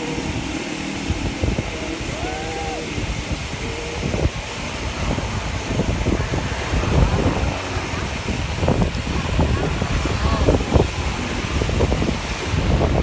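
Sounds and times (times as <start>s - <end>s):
wind buffeting microphone: 0.0s - 13.0s
faint voices: 1.4s - 5.2s, 9.2s - 11.4s.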